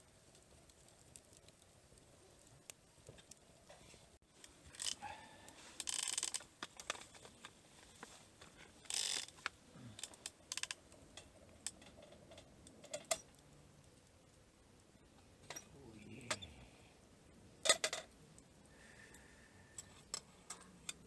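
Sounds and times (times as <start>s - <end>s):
rustling or scraping: 3.1s - 10.3s.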